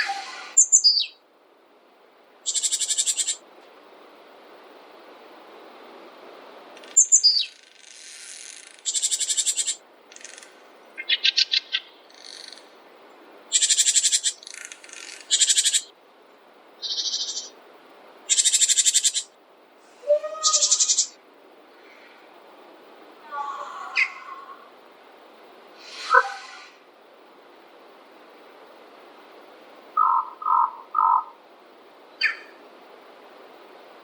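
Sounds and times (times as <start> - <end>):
songbirds trilling and chirping: 0.0 - 1.2, 2.4 - 3.4, 6.8 - 12.8, 13.5 - 15.9, 16.8 - 17.6, 18.3 - 22.3, 29.9 - 31.4, 32.0 - 32.6
faint background hiss: 0.0 - 34.0.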